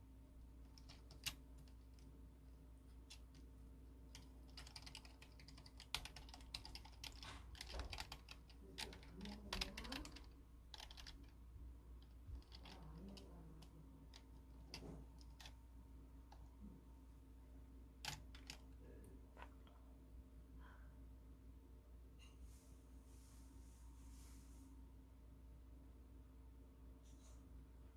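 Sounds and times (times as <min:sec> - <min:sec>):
typing on computer keyboard: 0:00.7 - 0:02.1, 0:04.1 - 0:11.4, 0:12.0 - 0:15.6, 0:18.0 - 0:18.7.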